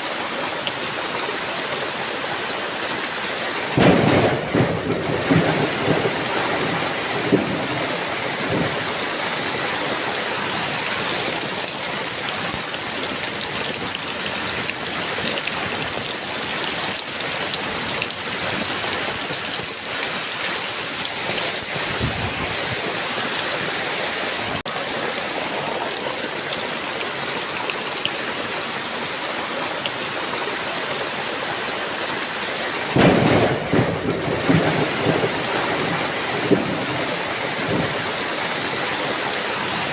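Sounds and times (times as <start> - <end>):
heavy rain pouring: 0.0 - 39.9
thunder rolling: 3.8 - 9.0, 21.3 - 23.0, 32.9 - 38.2.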